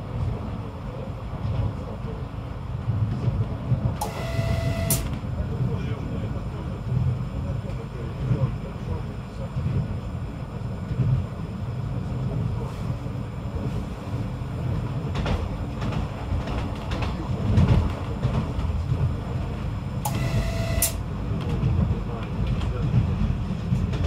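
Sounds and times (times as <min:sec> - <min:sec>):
railcar rumbling along track: 0:00.0 - 0:24.0
short electronic beep: 0:04.0 - 0:05.1, 0:20.1 - 0:21.0.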